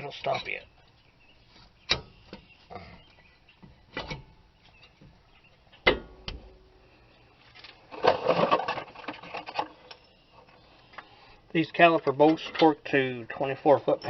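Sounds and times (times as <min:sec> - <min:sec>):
metal knocks: 0:05.8 - 0:06.5.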